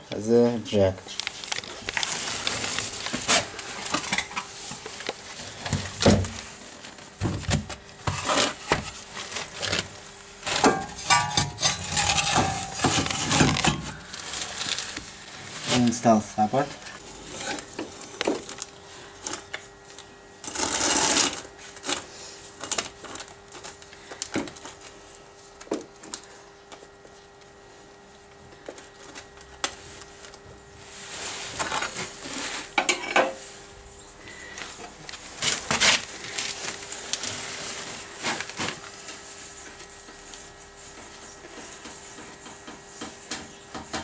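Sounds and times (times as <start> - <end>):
faint steady hum: 0.0 - 44.0
metal tools clinking and knocking: 10.7 - 13.8.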